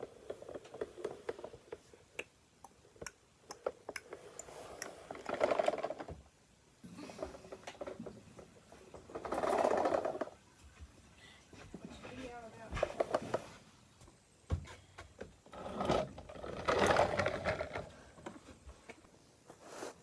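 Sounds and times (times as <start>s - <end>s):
plastic toys clicking: 0.4s - 6.2s.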